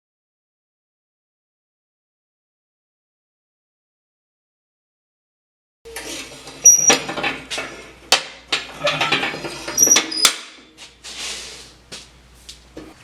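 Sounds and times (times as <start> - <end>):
metal parts clanking: 5.9 - 10.7
metal scraping: 5.9 - 11.8.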